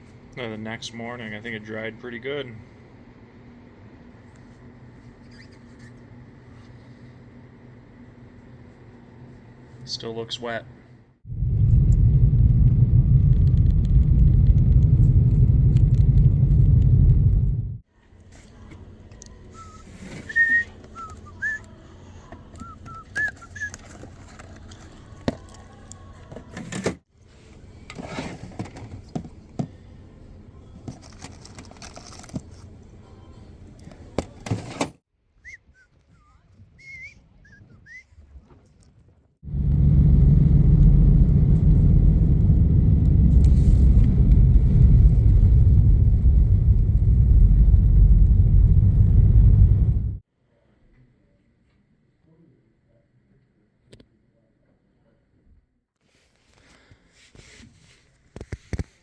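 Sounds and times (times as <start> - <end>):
loud low rumble: 11.2 - 17.8, 39.4 - 50.2.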